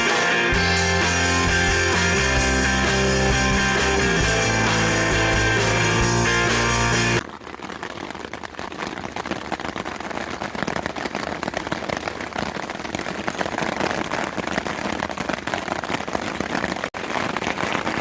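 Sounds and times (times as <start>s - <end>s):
steady rain falling: 0.6s - 18.0s.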